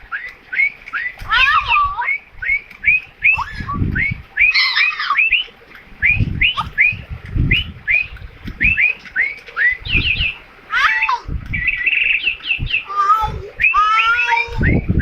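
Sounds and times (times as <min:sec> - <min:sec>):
parrot chirping: 0:00.1 - 0:05.5.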